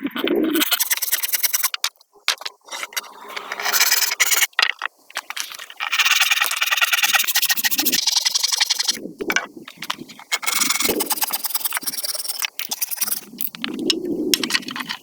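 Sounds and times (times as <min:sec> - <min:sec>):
hand tool rasping on wood: 0:05.9 - 0:09.0, 0:10.3 - 0:13.3.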